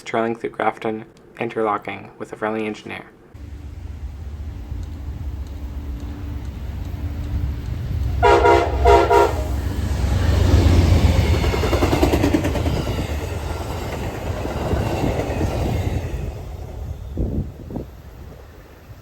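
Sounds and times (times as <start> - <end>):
train wheels clattering: 4.7 - 17.0
locomotive horn blasts: 8.2 - 9.7.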